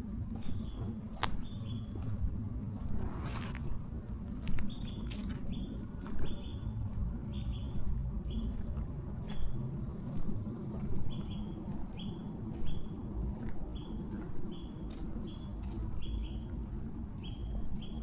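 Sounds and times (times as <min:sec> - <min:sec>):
footsteps on path: 0:00.0 - 0:18.0
steady low rumble: 0:00.0 - 0:18.0.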